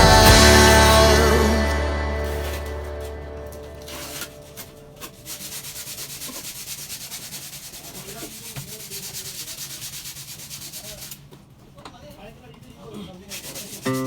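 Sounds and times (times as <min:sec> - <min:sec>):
sandpaper rubbing back and forth: 0:02.1 - 0:11.2, 0:13.2 - 0:14.0.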